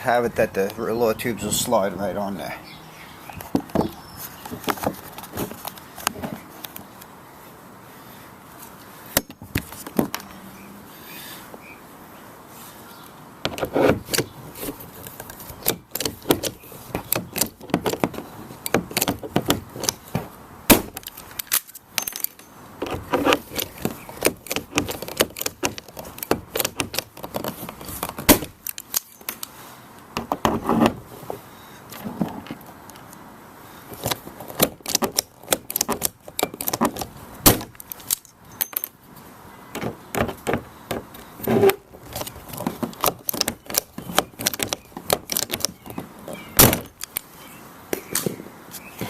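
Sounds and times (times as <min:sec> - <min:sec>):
hand tools clicking and clattering: 0:13.5 - 0:29.5, 0:33.9 - 0:39.0, 0:39.8 - 0:47.3.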